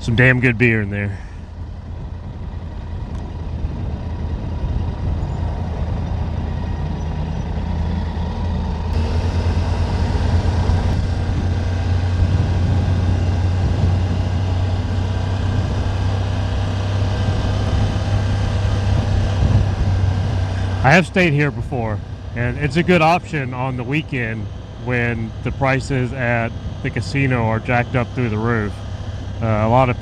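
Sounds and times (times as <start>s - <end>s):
motorcycle engine running: 0.0s - 30.0s
road noise: 0.0s - 30.0s
wind rush: 8.9s - 23.0s.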